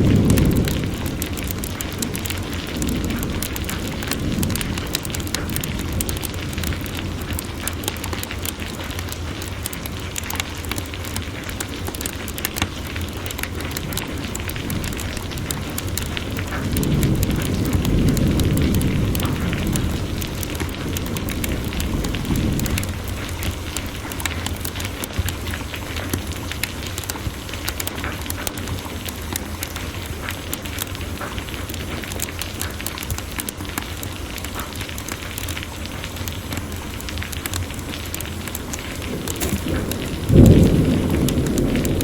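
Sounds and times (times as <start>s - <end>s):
thunder rumble: 0.0s - 7.7s, 14.6s - 24.1s, 38.6s - 42.0s
heavy rain: 0.0s - 42.0s
wood fire crackling: 0.0s - 42.0s.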